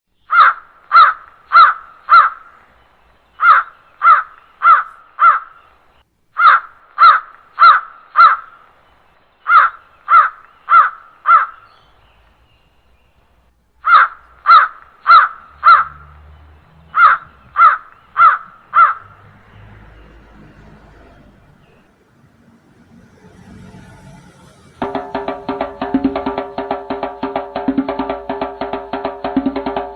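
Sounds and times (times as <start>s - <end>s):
crow cawing: 0.3s - 2.5s, 3.4s - 5.6s, 6.4s - 8.5s, 9.5s - 11.6s, 13.8s - 16.0s, 16.9s - 19.2s.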